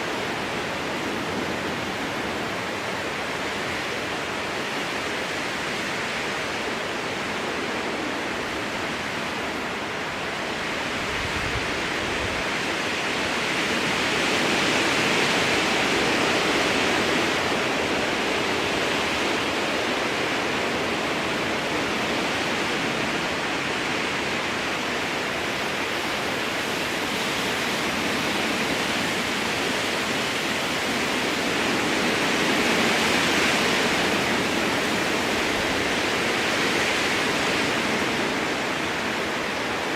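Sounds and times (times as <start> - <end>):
strong wind through forest: 0.0 - 39.9.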